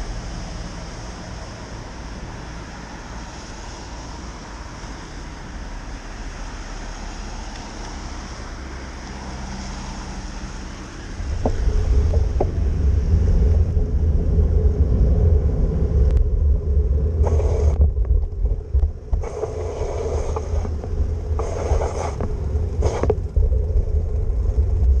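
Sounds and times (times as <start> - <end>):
wind buffeting microphone: 11.0 - 25.0.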